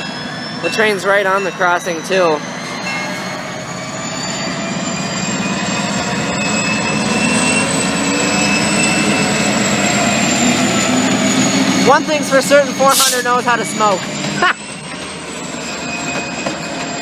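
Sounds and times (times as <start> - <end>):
diesel locomotive engine: 0.0 - 17.0
high turbocharger whine: 5.9 - 15.4.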